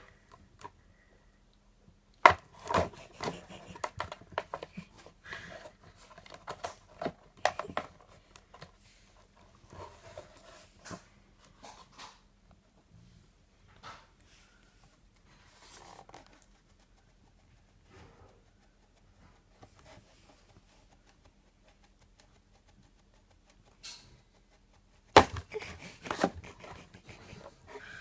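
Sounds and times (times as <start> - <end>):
rustles and taps: 2.2 - 12.6.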